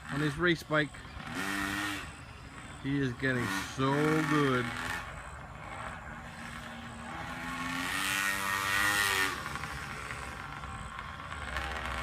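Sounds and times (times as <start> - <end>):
dirt bike engine passing: 0.0 - 12.0.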